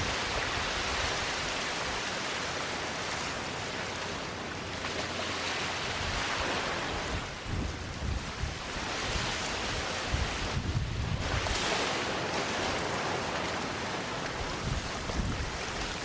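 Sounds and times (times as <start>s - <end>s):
wind rumbling on microphone: 0.0s - 3.2s, 5.6s - 16.0s
waves washing onto a beach: 0.0s - 16.0s.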